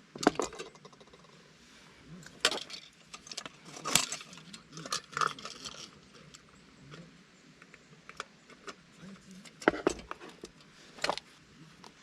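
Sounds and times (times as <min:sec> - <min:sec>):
small metal objects clinking: 0:02.4 - 0:06.4.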